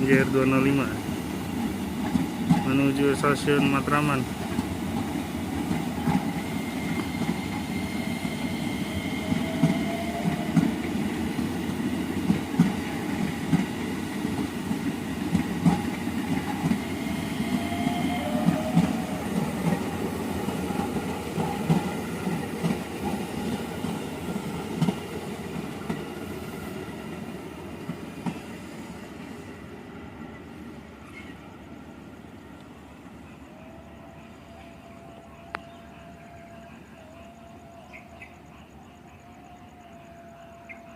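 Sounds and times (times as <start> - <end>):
train wheels knocking on rail joints: 1.6 - 7.6, 9.2 - 26.8.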